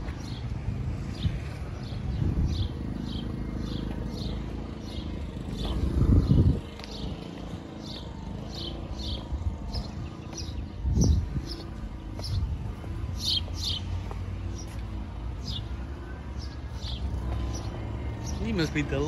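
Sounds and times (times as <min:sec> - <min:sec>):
bird chirping: 0:13.1 - 0:14.8.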